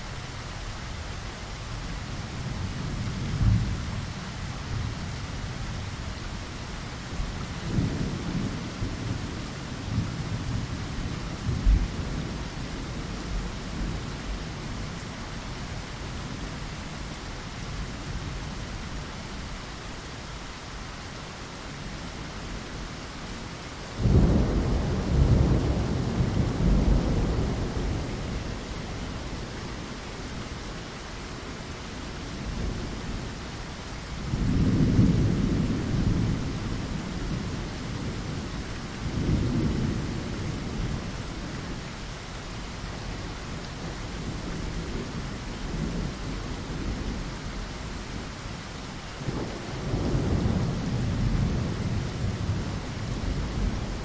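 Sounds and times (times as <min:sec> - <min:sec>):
steady rain: 0:00.0 - 0:54.0
thunder rumbling: 0:24.0 - 0:29.9, 0:34.2 - 0:41.8, 0:49.2 - 0:54.0.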